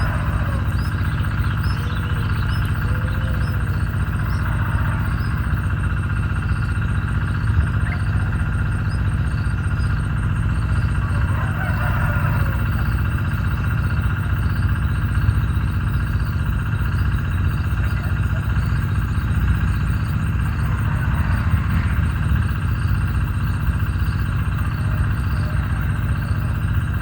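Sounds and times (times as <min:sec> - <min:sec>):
low motor rumble: 0:00.0 - 0:27.0.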